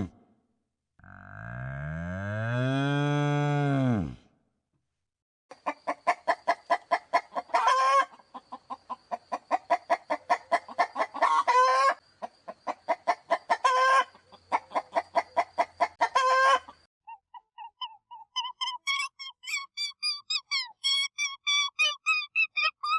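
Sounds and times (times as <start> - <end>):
hen cackling: 5.5 - 22.9.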